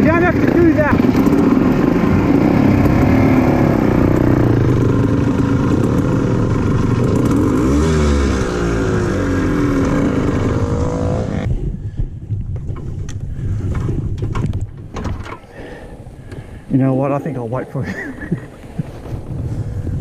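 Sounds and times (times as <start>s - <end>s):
dirt bike engine revving: 0.0s - 11.5s.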